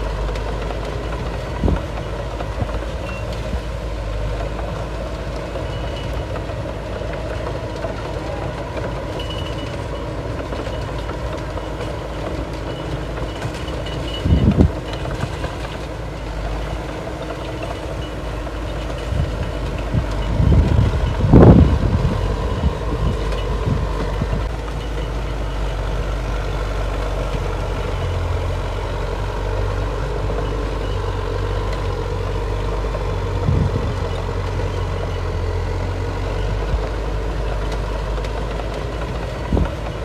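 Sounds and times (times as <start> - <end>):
diesel earthmoving machinery running: 0.0 - 40.0
faint reversing beeper: 3.0 - 3.4, 5.5 - 6.4, 7.3 - 15.1, 17.6 - 38.1.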